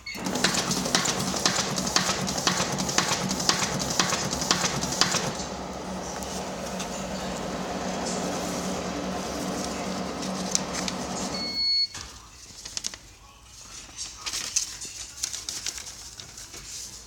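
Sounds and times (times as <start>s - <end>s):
machine clacking: 0.0s - 11.6s
motor hum: 0.0s - 11.6s.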